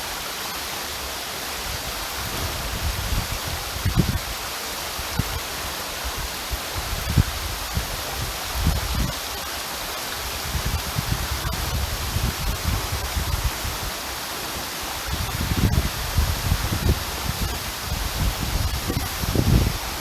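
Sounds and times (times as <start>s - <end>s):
waterfall rushing: 0.0s - 20.0s
low rumbles: 2.1s - 4.2s.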